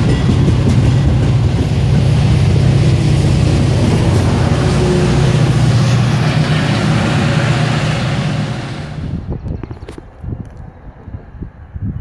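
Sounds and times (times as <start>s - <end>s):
passenger coaches rolling past: 0.0s - 9.4s
diesel locomotive engine drone: 0.0s - 9.6s.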